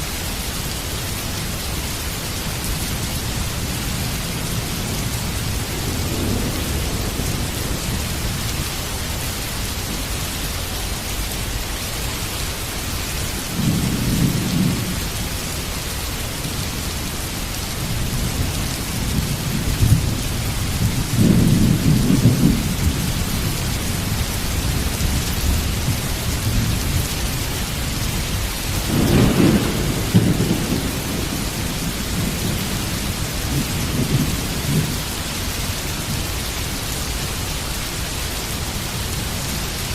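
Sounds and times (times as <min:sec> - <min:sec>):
heavy rain: 0:00.0 - 0:39.9
rolling thunder: 0:04.8 - 0:10.1, 0:13.5 - 0:15.4, 0:17.8 - 0:35.5.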